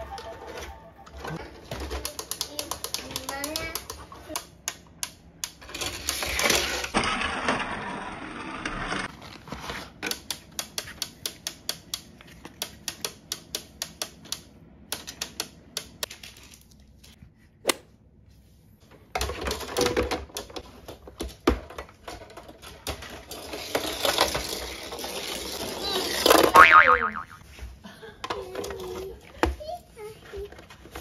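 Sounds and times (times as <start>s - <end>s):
ratcheting clicks of toy elevator: 1.8s - 6.6s
rattling on plastic track: 5.4s - 10.2s, 19.1s - 26.5s
toy car rolling down plastic ramp: 5.4s - 10.2s, 19.2s - 27.0s.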